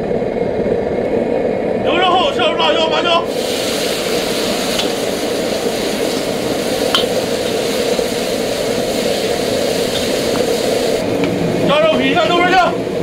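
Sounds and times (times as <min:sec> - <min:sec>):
chilies sizzling in hot oil: 0:03.3 - 0:11.4.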